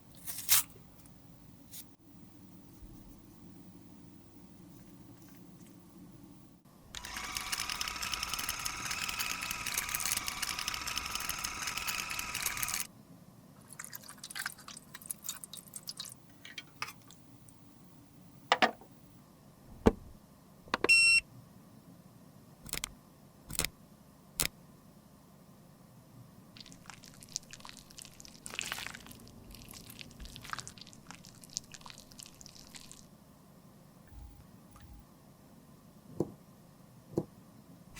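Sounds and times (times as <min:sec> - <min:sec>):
small motor whirring: 0:06.9 - 0:12.9
high-pitched beep: 0:20.9 - 0:21.2.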